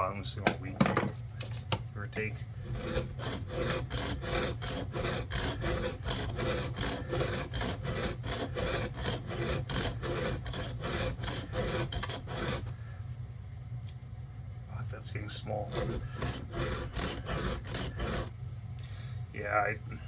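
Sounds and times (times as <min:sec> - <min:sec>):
file rasping on chainsaw chain: 0:02.6 - 0:12.7, 0:15.6 - 0:18.3.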